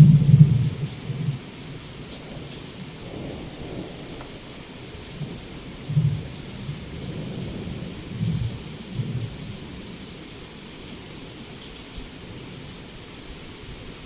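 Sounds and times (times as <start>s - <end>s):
thunder rumbling: 0.0s - 10.0s
heavy rain falling: 0.0s - 14.0s.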